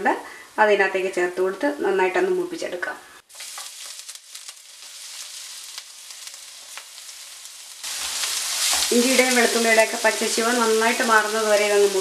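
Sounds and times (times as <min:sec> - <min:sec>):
garlic sizzling in hot oil: 0:03.3 - 0:12.0.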